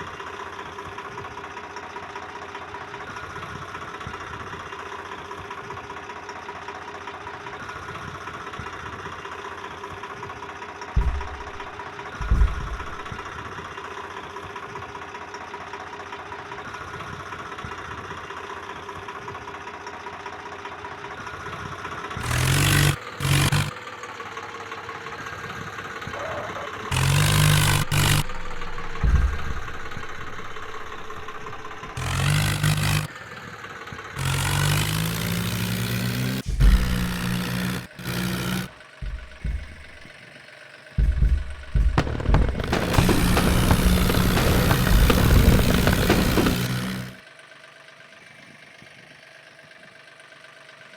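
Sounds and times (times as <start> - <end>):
tractor engine running: 9.3 - 15.6, 18.2 - 40.2, 41.0 - 47.2
short thumps: 11.0 - 13.3, 27.0 - 33.1, 36.3 - 40.1, 41.0 - 47.2.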